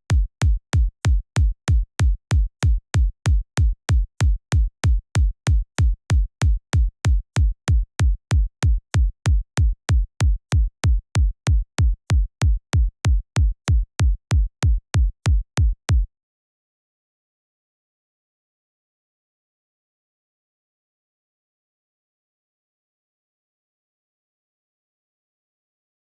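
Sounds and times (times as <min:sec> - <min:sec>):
electronic kick drum: 0:00.0 - 0:16.1.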